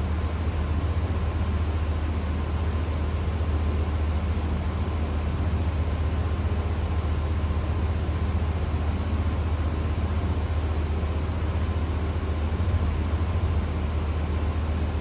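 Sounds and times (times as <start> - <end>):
ceiling fan humming: 0.0 - 15.0.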